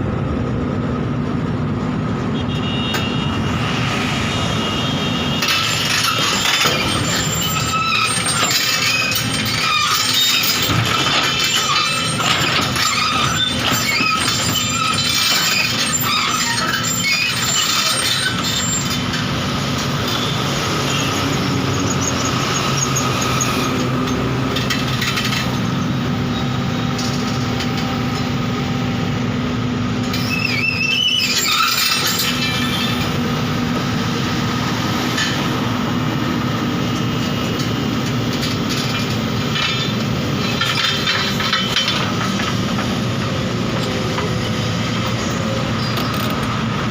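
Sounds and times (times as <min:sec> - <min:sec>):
high metallic squealing: 0:04.4 - 0:19.1, 0:20.0 - 0:27.4, 0:30.1 - 0:33.2
backhoe loader engine running: 0:05.0 - 0:46.9.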